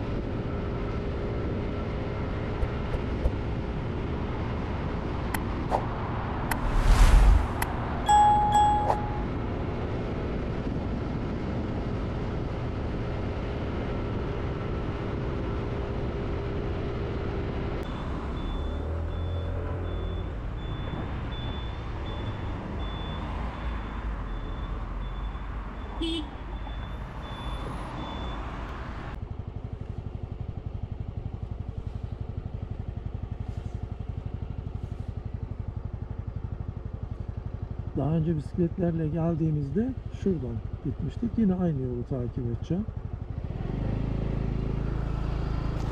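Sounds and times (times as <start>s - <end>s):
wind noise: 6.4s - 9.3s
short high beeps: 8.1s - 9.3s.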